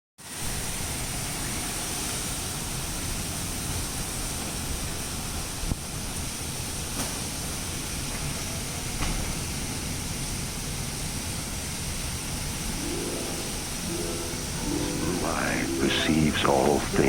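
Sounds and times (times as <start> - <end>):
heavy rain pouring: 11.8 - 17.0.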